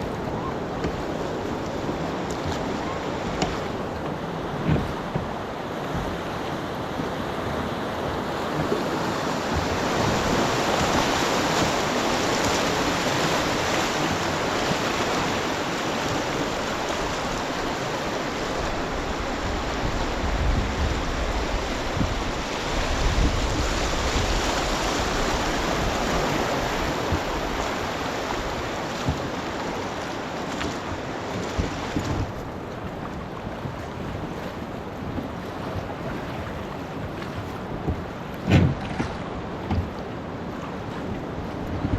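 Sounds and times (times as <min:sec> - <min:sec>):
river water rushing: 0:00.0 - 0:41.9
wind rumbling on microphone: 0:00.0 - 0:41.9.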